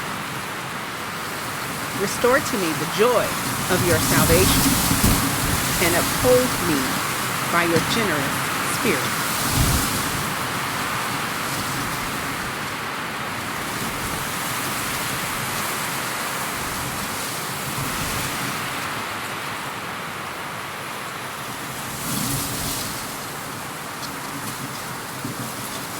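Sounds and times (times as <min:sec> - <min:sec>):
rushing nature ambience: 0:00.0 - 0:13.4.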